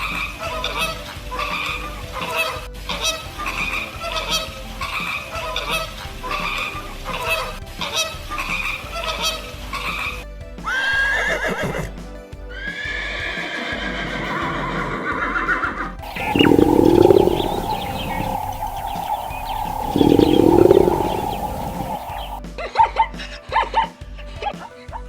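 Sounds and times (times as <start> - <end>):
horse neighing: 10.7 - 12.0, 12.6 - 22.4
loud low sounds: 16.0 - 22.4
steady tone: 16.0 - 22.4.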